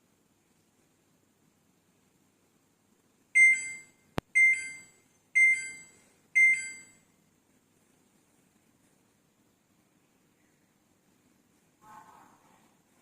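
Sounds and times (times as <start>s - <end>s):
washing machine panel beeping: 3.4s - 7.0s.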